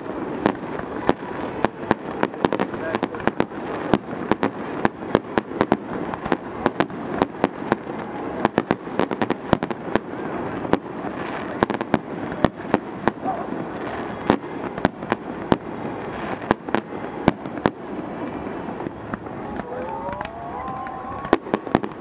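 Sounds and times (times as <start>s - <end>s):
fireworks banging: 0.0s - 22.0s
steady background noise: 0.0s - 22.0s.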